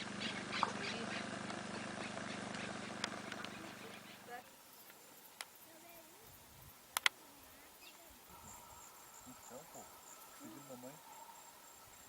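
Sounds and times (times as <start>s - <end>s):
insects chirping: 0.0s - 12.0s
sharp clicks: 6.9s - 7.2s.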